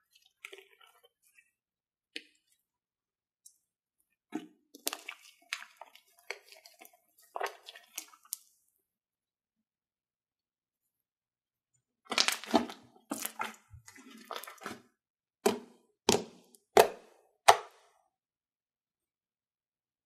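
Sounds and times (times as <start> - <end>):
slime crackling squelches: 4.7 - 8.6, 12.0 - 14.9.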